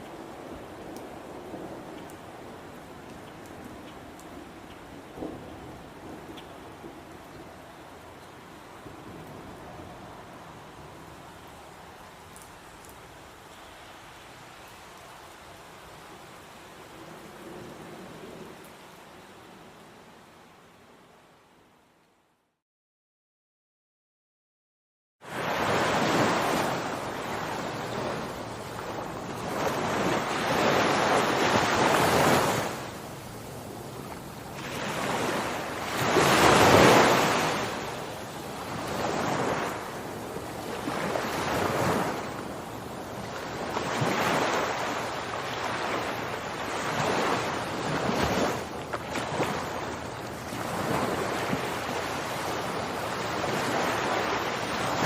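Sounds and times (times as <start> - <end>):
ocean waves breaking: 25.2 - 55.0.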